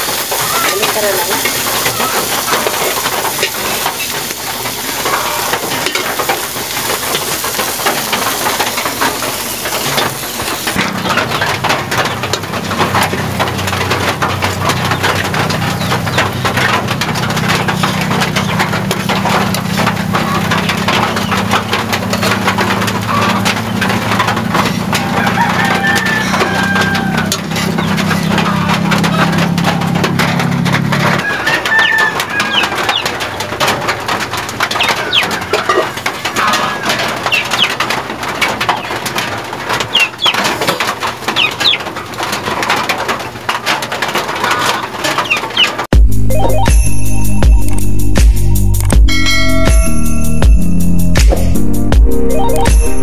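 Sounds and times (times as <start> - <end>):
fritters sizzling in hot oil: 0.0 - 10.8
burning wood crackling: 0.0 - 46.3.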